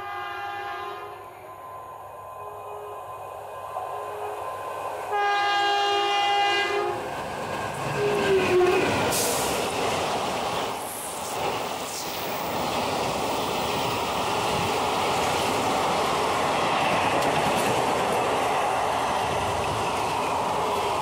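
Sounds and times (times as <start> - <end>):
locomotive horn blast: 0.0 - 1.3, 5.1 - 7.0, 8.0 - 8.9
train passing at speed: 0.0 - 21.0.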